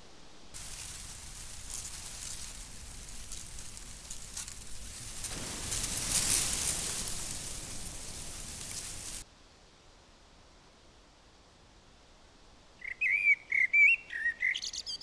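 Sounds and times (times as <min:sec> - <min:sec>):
rushing hiss with crackles: 0:00.6 - 0:09.2.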